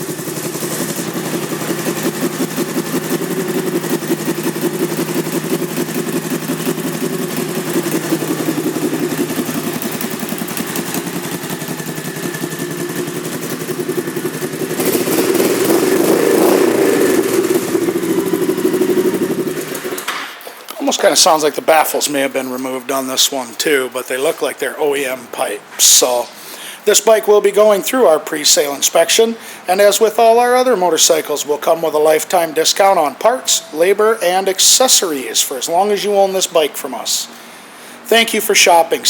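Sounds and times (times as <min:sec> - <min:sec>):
motorcycle engine pulsing exhaust: 0:00.0 - 0:20.1.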